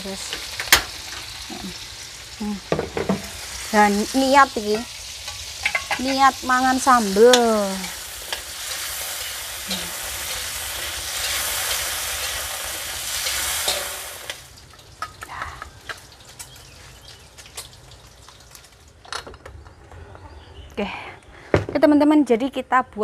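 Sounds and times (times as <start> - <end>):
vegetables sizzling in hot oil: 0.0 - 19.0
metal spatula stirring in wok: 4.6 - 6.4, 7.0 - 14.0.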